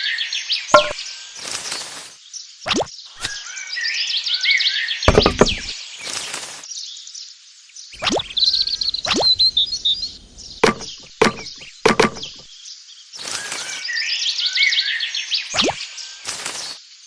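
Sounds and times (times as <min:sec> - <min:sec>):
sharp knocks: 0:00.8 - 0:01.0, 0:05.1 - 0:05.7, 0:10.6 - 0:12.5
birds chirping: 0:08.0 - 0:12.5.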